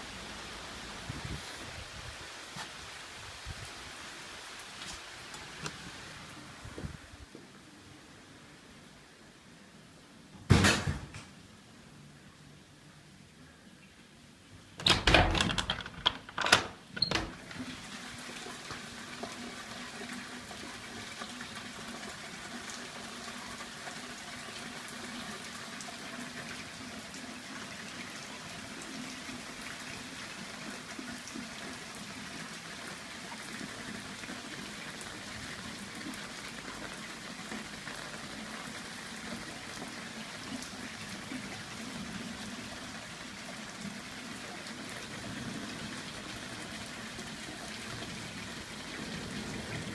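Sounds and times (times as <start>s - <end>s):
steady rain splashing: 0.0s - 10.3s, 14.2s - 49.9s.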